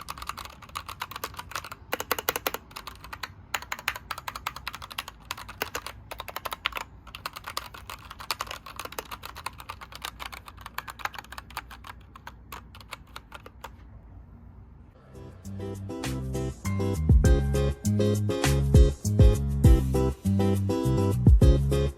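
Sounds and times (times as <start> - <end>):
mechanical keyboard typing: 0.0 - 13.9.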